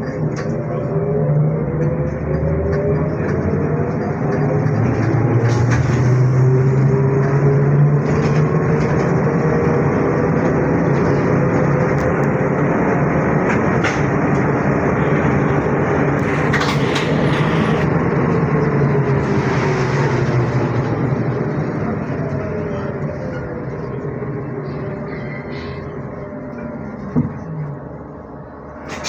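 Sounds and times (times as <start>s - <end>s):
trolleybus running rumble: 0.0s - 29.0s
traction motor whine: 15.6s - 18.3s.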